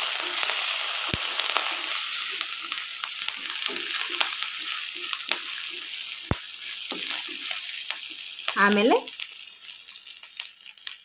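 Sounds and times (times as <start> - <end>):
food sizzling in hot oil: 0.0 - 11.0
spatula stirring and scraping: 3.3 - 8.2.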